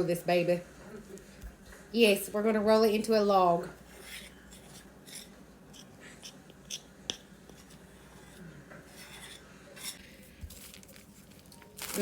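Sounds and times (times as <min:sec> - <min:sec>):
faint rustling of dough on paper: 0:03.6 - 0:12.0.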